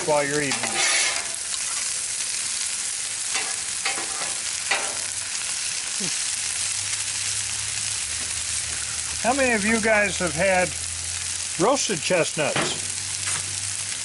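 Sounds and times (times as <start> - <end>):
food sizzling on a griddle: 0.0 - 14.0
spatula scraping: 0.5 - 1.8.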